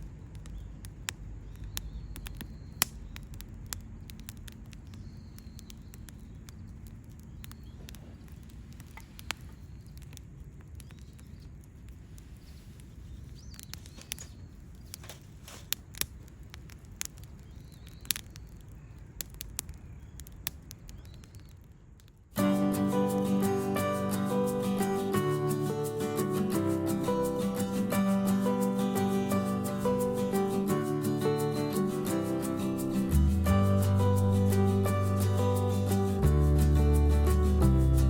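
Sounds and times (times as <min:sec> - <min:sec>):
campfire crackling and popping: 0:00.0 - 0:38.0
acoustic guitar music: 0:22.4 - 0:38.0.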